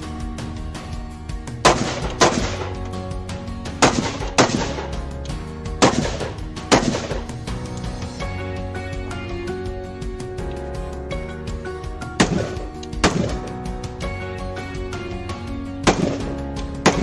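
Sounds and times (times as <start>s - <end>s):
background music: 0.0s - 17.0s
gunshots: 1.6s - 2.8s, 3.7s - 5.1s, 5.8s - 7.5s, 12.2s - 13.6s, 15.8s - 17.0s.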